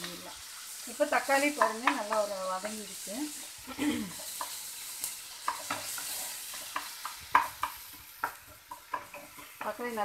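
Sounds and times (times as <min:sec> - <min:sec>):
vegetables sizzling in oil: 0:00.0 - 0:10.0
wooden spatula scraping pan: 0:05.3 - 0:10.0.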